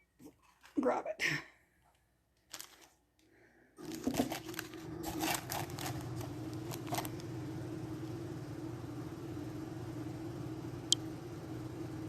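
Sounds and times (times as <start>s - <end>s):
objects clattering and knocking: 3.8s - 7.1s
low mechanical hum: 3.8s - 12.0s.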